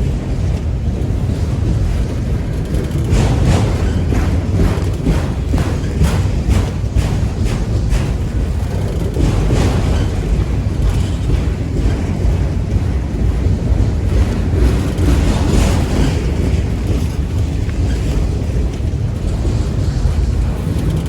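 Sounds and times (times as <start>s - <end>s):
freight train wheels rumbling: 0.0s - 21.0s
wind buffeting microphone: 0.0s - 21.0s.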